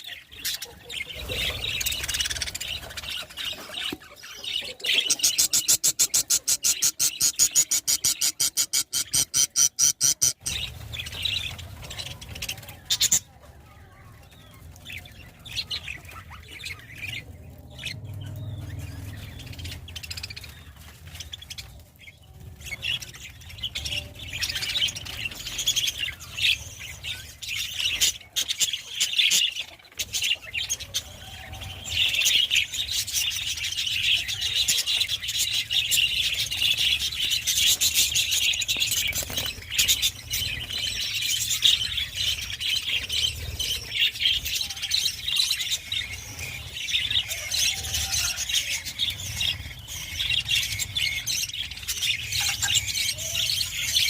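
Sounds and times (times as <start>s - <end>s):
budgerigars chattering: 0.4s - 11.5s.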